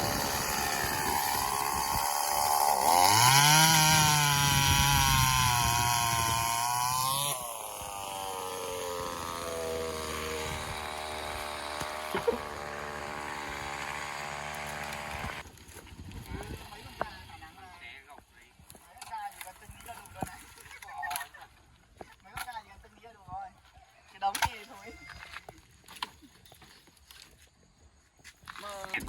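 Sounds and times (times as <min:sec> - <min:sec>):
small petrol engine revving: 0:00.0 - 0:15.4.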